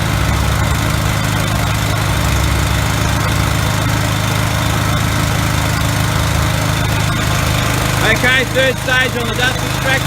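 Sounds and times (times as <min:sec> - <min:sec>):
dust extractor motor: 0:00.0 - 0:10.0
floor grinder running: 0:00.0 - 0:10.0
generator low hum: 0:00.0 - 0:10.0.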